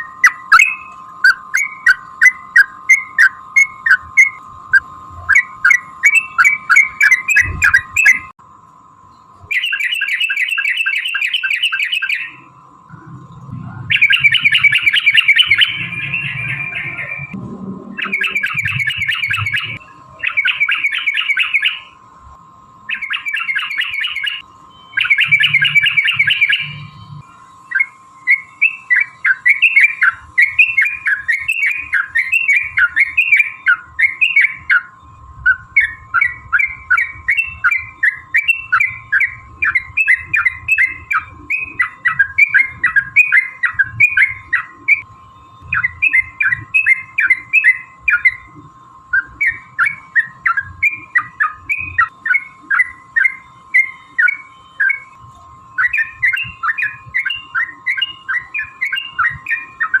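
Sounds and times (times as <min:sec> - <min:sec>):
faint steady hum: 0:00.0 - 1:00.0
bulbul bubbly chattering song: 0:09.5 - 0:22.0, 0:22.9 - 0:45.0.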